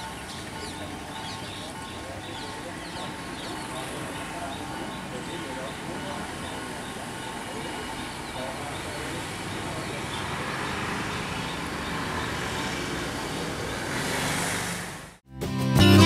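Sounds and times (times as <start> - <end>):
diesel train rumbling: 0.0 - 15.2
acoustic guitar music: 15.4 - 16.0.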